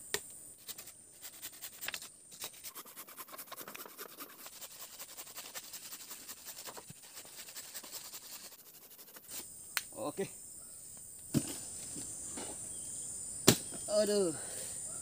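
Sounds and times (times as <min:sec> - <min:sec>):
insects droning: 0:00.0 - 0:15.0
rapid close scratching: 0:00.6 - 0:09.5.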